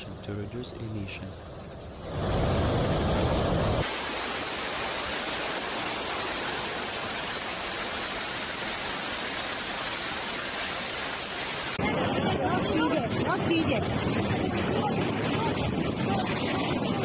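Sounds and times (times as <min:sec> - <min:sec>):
rushing water hiss: 0:00.3 - 0:11.8.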